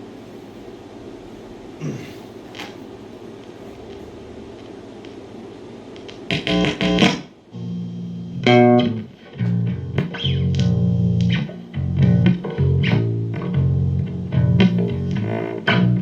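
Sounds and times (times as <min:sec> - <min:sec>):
amplified guitar low plucked notes: 0:06.3 - 0:16.0.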